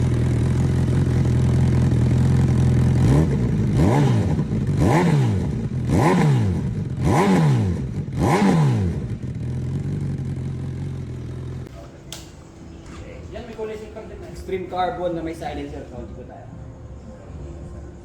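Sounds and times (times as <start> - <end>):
engine revving: 0.0 - 11.7
motorcycle engine idling: 0.0 - 11.7.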